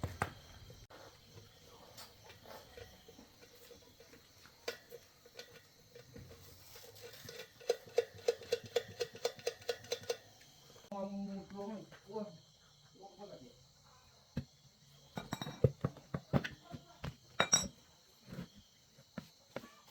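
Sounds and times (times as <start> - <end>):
metal tools clicking and knocking: 6.8 - 10.5, 15.2 - 15.9, 17.4 - 17.8.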